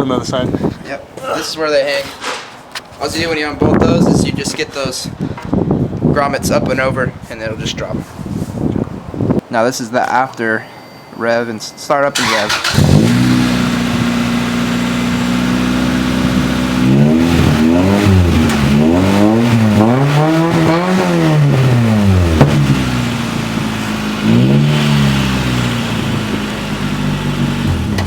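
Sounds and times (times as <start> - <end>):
car engine idling and revving: 12.5 - 28.0.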